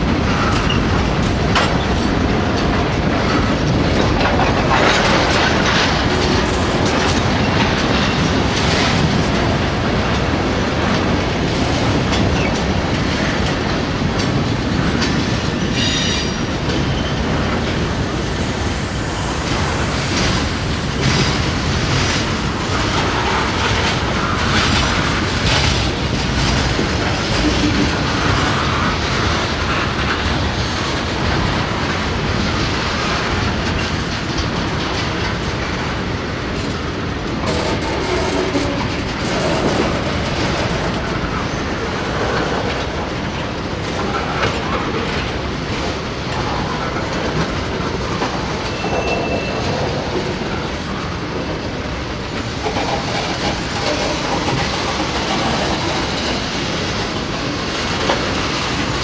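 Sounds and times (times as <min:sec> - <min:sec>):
freight train rumbling past: 0:00.0 - 0:59.0
wheels clicking over rail joints: 0:00.0 - 0:59.0
high wheel squeal: 0:48.7 - 0:49.7.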